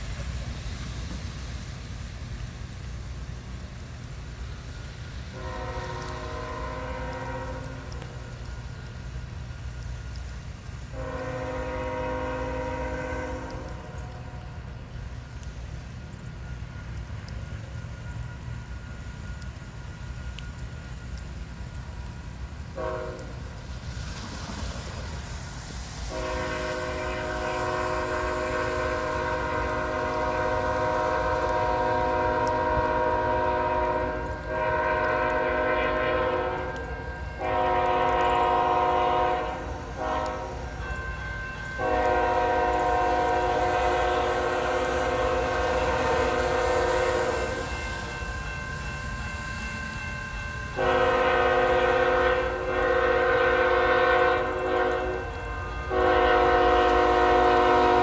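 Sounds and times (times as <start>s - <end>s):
train rumbling: 0.0s - 58.0s
locomotive air horn blasts: 5.3s - 8.2s, 10.9s - 14.5s, 22.8s - 23.5s, 26.0s - 48.6s, 50.7s - 58.0s.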